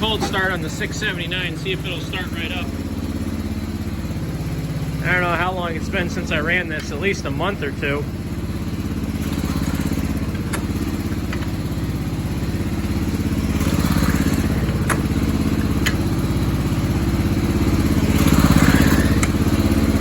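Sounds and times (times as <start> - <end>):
garden tractor engine running: 0.0 - 20.0.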